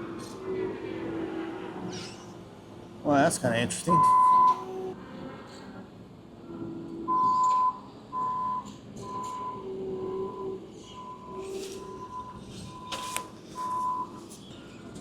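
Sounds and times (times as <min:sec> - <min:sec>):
vehicle backup alarm beeping: 0:03.9 - 0:04.8, 0:07.1 - 0:14.3.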